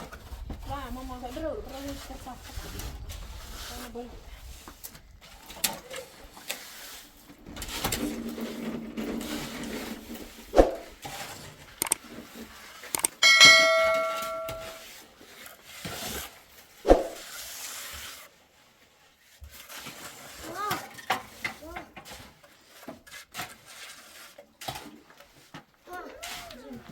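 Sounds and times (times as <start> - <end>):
scraping: 0.1 - 15.0
metal object clanging: 13.0 - 14.8.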